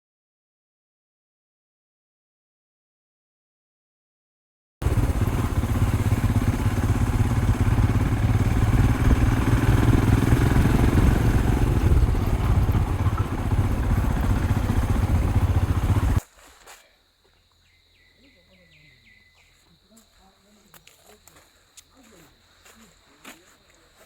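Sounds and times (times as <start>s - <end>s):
motorcycle engine rumbling: 4.8s - 16.2s.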